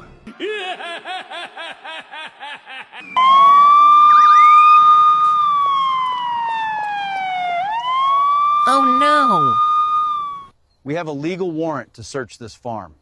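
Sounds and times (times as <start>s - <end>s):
police siren: 3.2s - 10.5s.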